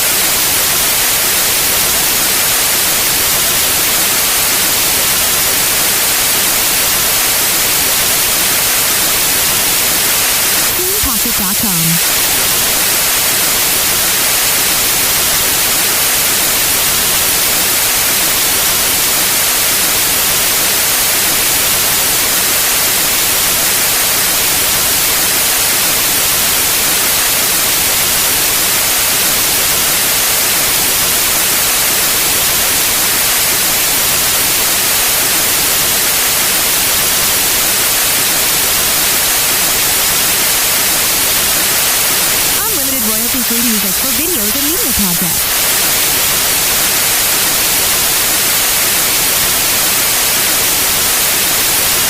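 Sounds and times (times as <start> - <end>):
white noise hiss: 0.0 - 52.0.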